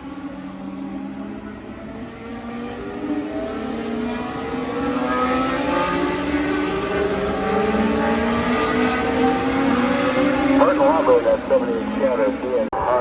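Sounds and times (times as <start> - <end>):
race cars accelerating: 0.0 - 13.0.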